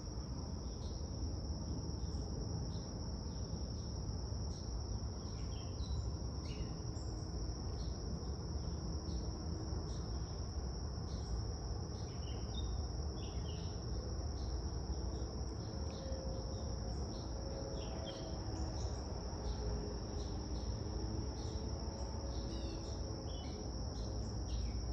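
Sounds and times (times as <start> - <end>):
insects trilling: 0.0 - 24.9.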